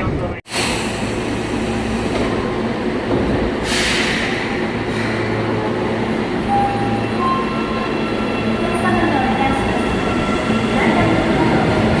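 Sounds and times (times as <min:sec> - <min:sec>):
subway car wheels rumbling: 0:00.0 - 0:12.0
air hiss: 0:03.6 - 0:05.2.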